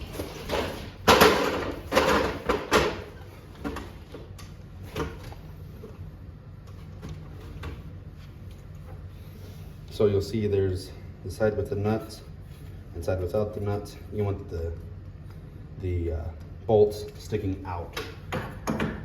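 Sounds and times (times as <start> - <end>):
hardware clattering and scraping: 0.0 - 4.0.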